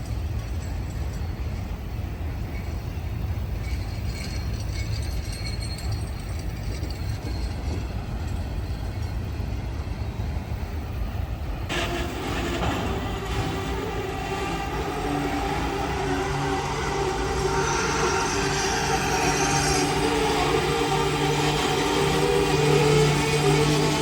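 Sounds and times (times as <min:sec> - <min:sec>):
diesel locomotives rumbling: 0:00.0 - 0:24.0.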